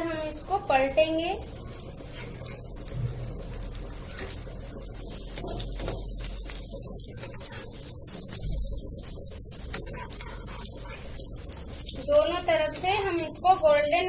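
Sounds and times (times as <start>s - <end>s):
frying in hot oil: 0.0s - 14.0s.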